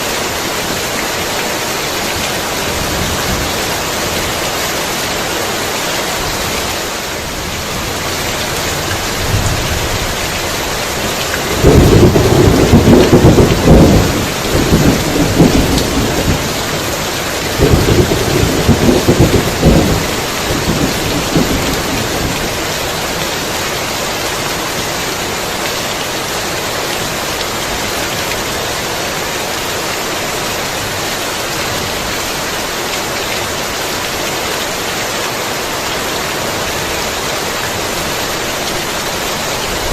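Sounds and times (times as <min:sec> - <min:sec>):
heavy rain: 0:00.0 - 0:39.9
thunder rumbling: 0:07.3 - 0:22.7.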